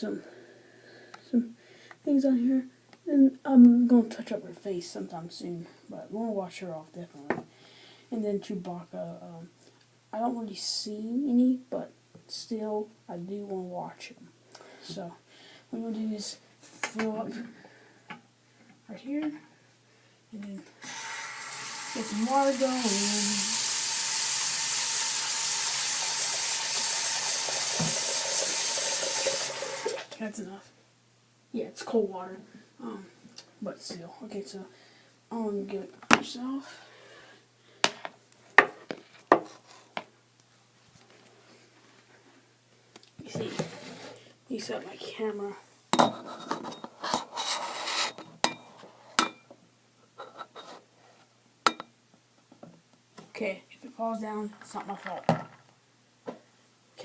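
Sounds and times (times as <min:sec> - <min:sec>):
tap running into basin: 0:20.9 - 0:30.1.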